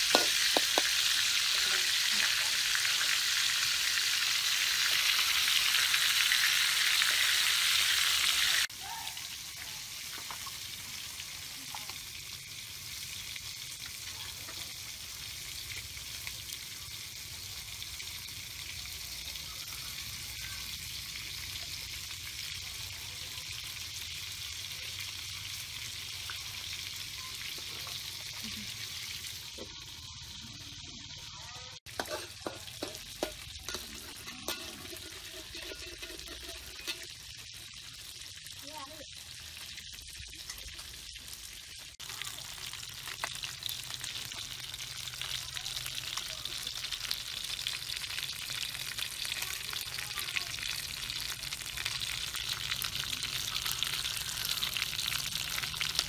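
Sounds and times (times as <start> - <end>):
fish frying in oil: 0.0 - 56.0
metal spatula scraping a wok: 31.9 - 37.4.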